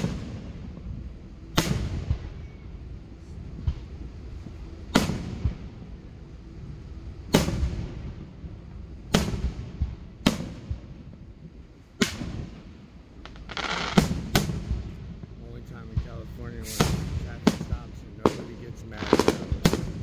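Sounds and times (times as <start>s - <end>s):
firework shells booming: 1.5s - 2.6s, 4.9s - 5.8s, 7.3s - 8.2s, 9.0s - 11.2s, 12.0s - 20.0s.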